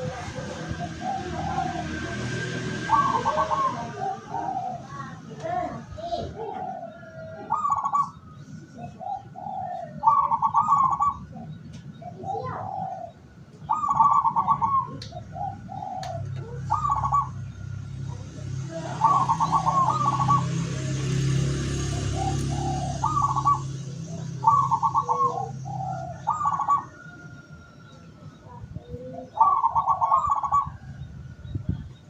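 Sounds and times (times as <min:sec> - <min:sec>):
dove cooing with trill: 0:00.0 - 0:32.0.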